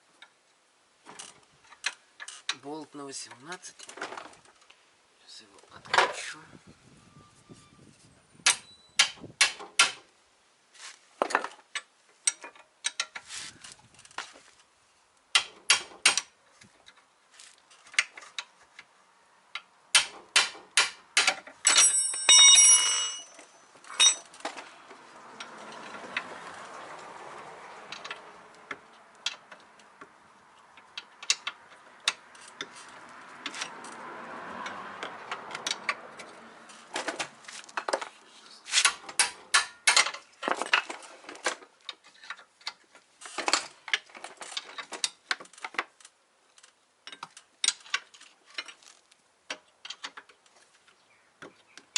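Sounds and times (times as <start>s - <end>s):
rustle of handling: 10.7s - 11.2s, 13.0s - 15.0s, 16.5s - 18.9s, 36.2s - 39.0s, 40.4s - 49.4s
metallic clink: 21.6s - 24.3s.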